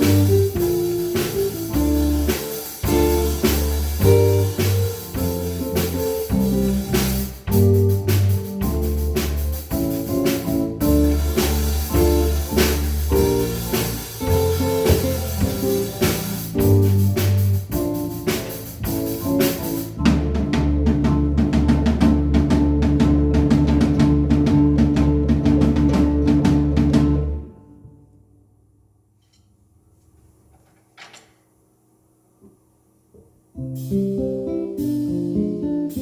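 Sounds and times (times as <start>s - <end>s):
bass line: 0.0s - 27.5s
steady drum beat: 0.0s - 27.5s.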